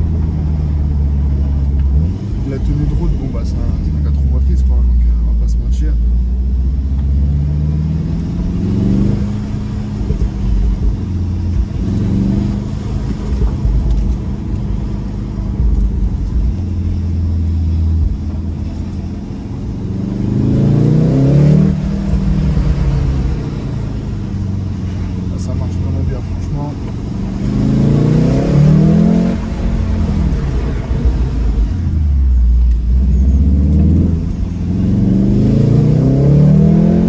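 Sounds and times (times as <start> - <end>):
car engine accelerating through gears: 0.0 - 37.0
low road rumble: 0.0 - 37.0.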